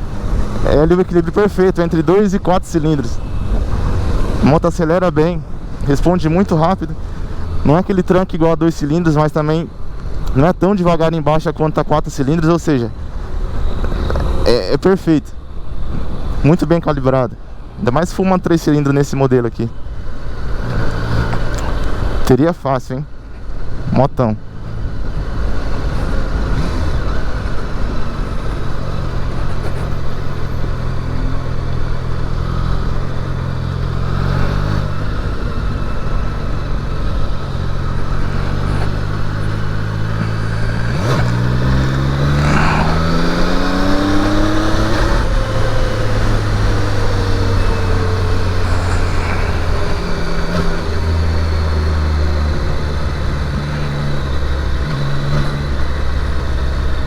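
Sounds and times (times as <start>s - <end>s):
motorcycle engine accelerating: 24.6s - 57.0s.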